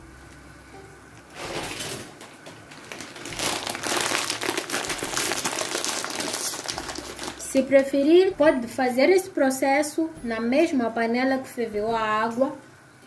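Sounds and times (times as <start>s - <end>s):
shrimp sizzling in a frying pan: 3.2s - 7.6s.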